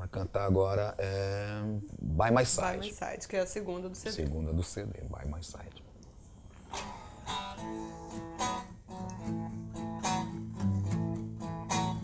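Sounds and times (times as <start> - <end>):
guitar strumming slow blues: 6.7 - 12.0.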